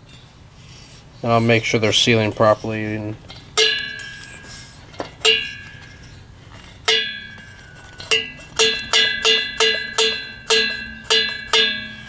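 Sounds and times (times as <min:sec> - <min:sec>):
metal object struck clanging: 0:03.6 - 0:12.0.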